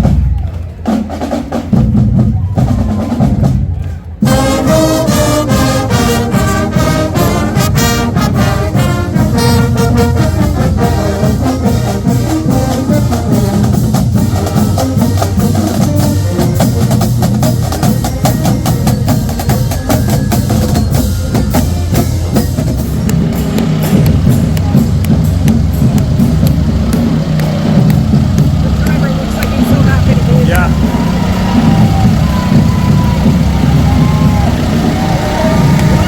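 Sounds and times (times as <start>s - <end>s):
steady drumbeat: 0.0s - 36.0s
brass horns: 2.8s - 27.8s.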